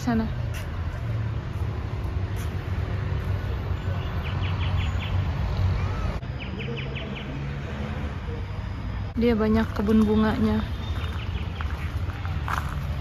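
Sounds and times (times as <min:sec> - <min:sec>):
bird chirping: 0:03.8 - 0:07.5.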